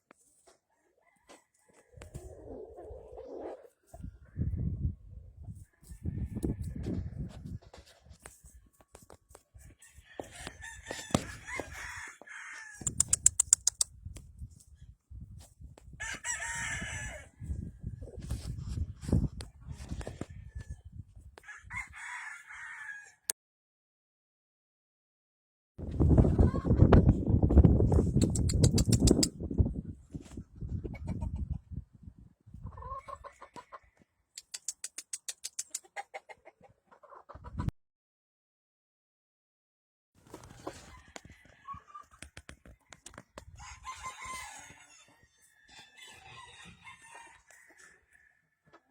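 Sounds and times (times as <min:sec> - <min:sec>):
chickens clucking: 0:02.0 - 0:04.9, 0:30.6 - 0:31.8, 0:32.5 - 0:37.7
rooster crowing: 0:09.9 - 0:12.9, 0:16.0 - 0:17.3, 0:21.4 - 0:23.3, 0:43.6 - 0:48.6
sharp clicks: 0:12.8 - 0:13.9, 0:28.2 - 0:29.3, 0:34.4 - 0:35.8.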